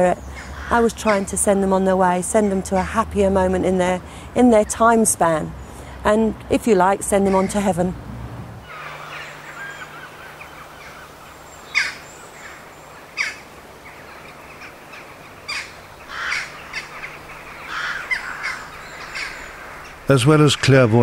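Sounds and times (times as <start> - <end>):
loud bird calls: 0.0 - 3.0, 7.2 - 7.7, 8.6 - 21.0
faint bird chirping: 8.6 - 21.0.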